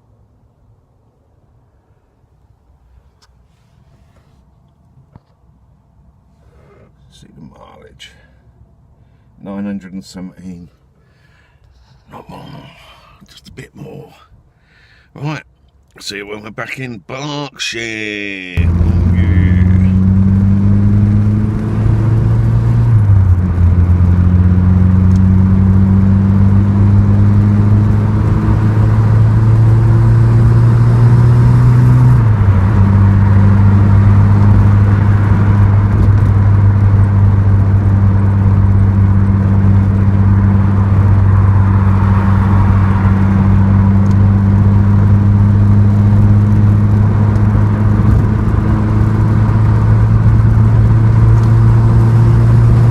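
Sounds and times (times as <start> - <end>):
turbocharged car engine accelerating: 18.6 - 52.9.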